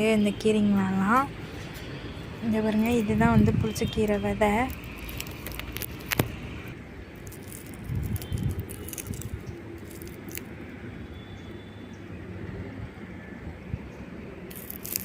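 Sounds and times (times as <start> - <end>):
dry stems clicking and rustling: 4.1 - 6.4, 7.1 - 10.5, 14.5 - 15.0.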